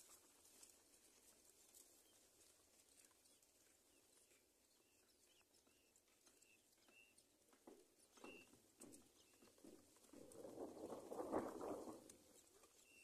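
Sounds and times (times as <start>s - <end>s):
faint bird chirps: 3.3s - 7.2s, 8.0s - 9.5s.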